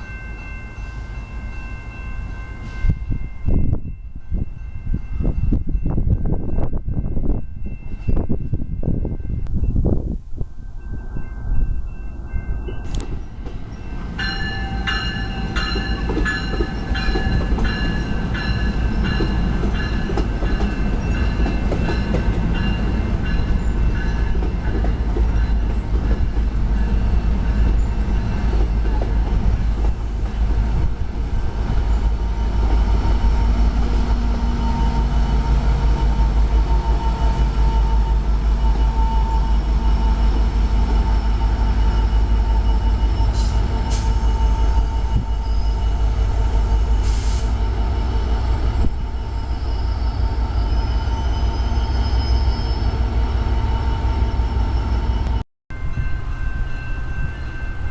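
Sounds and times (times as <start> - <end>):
train rumbling past: 0.0 - 57.9
bell ringing: 13.8 - 24.4.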